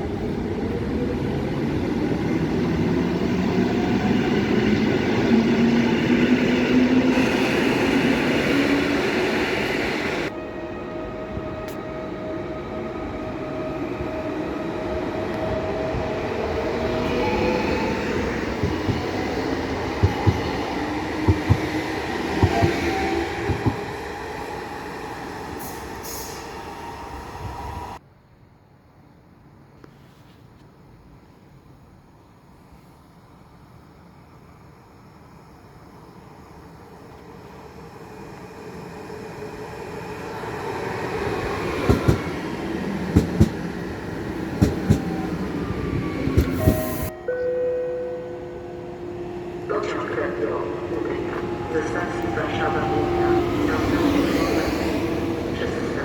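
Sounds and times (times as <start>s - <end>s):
train rumble: 0.0s - 24.8s, 36.6s - 47.5s, 48.1s - 56.0s
train wheels rumbling on rail: 12.8s - 26.8s, 38.2s - 47.1s
train wheels knocking over rail joints: 18.4s - 23.9s, 41.8s - 42.4s, 43.1s - 43.8s, 44.5s - 45.2s.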